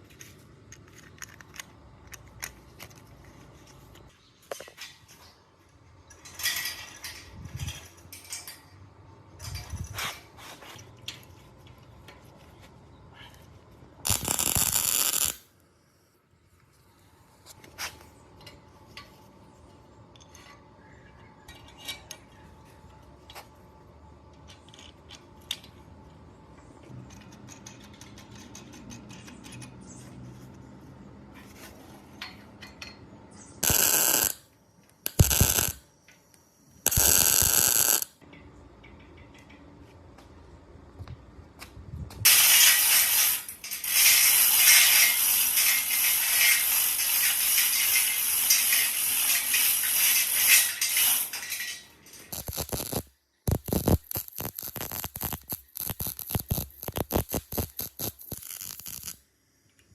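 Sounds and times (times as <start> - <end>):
metal tools clinking and scraping: 0.1 - 12.6, 20.1 - 23.5, 31.3 - 33.6, 42.3 - 53.0
sharp clicks: 52.3 - 59.2.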